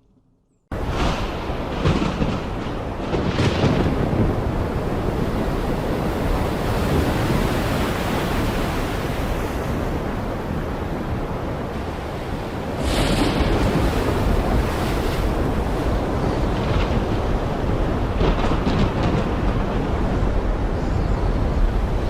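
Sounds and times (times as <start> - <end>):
heavy rain pouring: 0.7 - 8.1, 12.5 - 14.8, 15.4 - 20.7.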